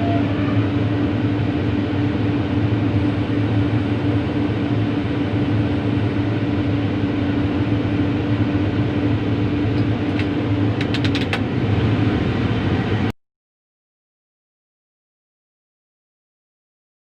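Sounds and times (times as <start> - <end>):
diesel engine running: 0.0 - 13.1.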